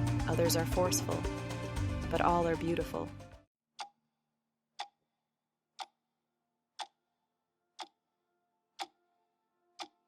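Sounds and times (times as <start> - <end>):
sharp ticks: 6.8 - 7.0.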